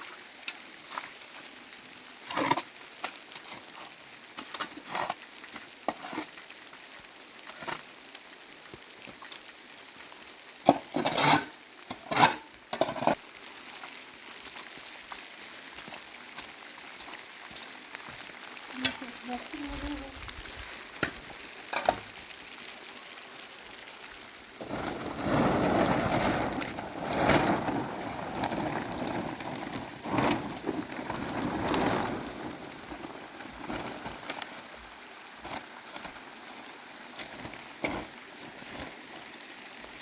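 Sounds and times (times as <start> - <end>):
heavy rain falling: 1.5 - 40.0
thunder rumbling: 24.6 - 34.2.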